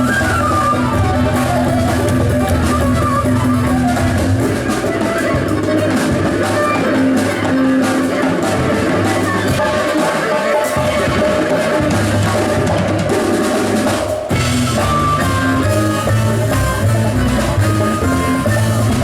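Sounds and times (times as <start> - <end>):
double bass line: 0.0 - 5.9, 14.3 - 19.0
drums and percussion: 0.0 - 19.0
instrumental melody: 0.0 - 19.0.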